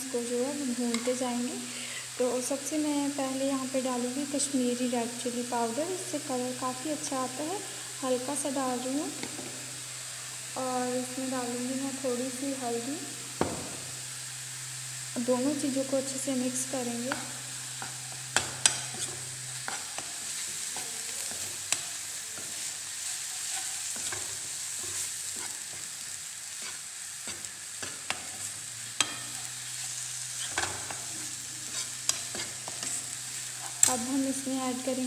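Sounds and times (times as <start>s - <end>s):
onion paste sizzling in oil: 0.0s - 35.0s
spoon scraping a pan: 17.1s - 34.0s.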